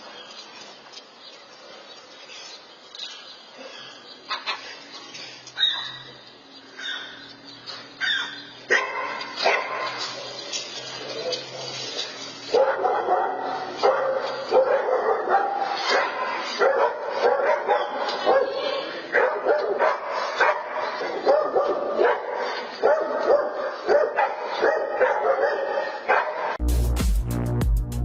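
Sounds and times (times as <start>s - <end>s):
dog barking and yipping: 5.6s - 6.1s, 6.8s - 7.2s, 8.0s - 10.4s, 12.4s - 26.6s
electronic dance music: 26.6s - 28.0s.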